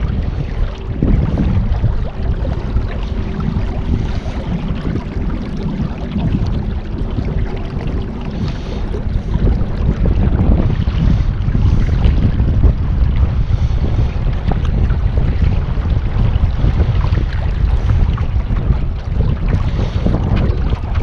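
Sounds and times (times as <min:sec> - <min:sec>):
boat motor running: 0:00.0 - 0:21.0
wind buffeting microphone: 0:00.0 - 0:21.0.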